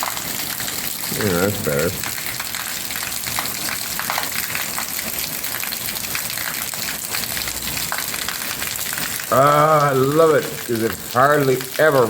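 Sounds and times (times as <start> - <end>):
heavy rain downpour: 0.0 - 12.0
raindrops spattering and dripping: 0.0 - 12.0.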